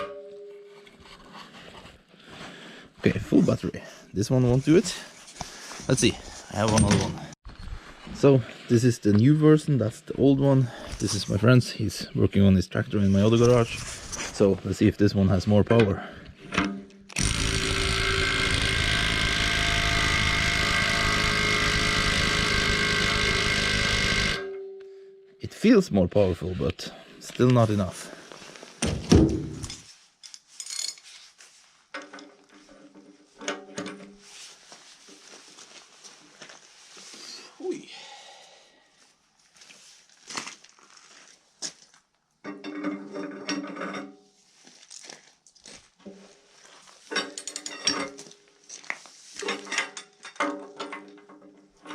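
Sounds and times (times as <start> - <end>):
impact wrench hammering on bolt: 17.2 - 24.5.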